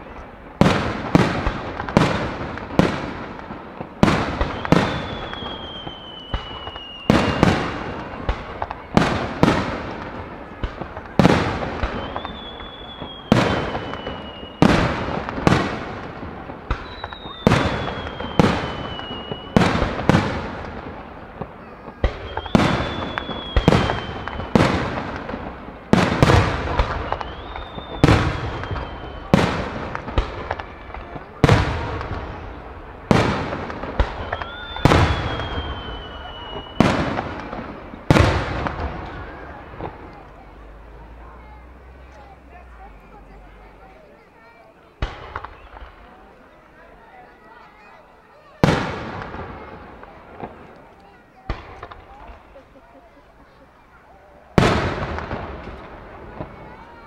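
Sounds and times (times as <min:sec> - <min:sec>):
whistle gliding down in pitch: 0:04.6 - 0:07.4, 0:12.0 - 0:14.6, 0:34.2 - 0:36.8.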